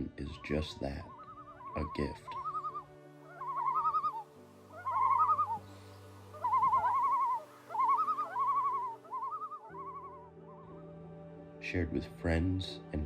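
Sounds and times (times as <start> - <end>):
soft background music: 0.0 - 13.0
loons tremolo calls: 0.3 - 10.7.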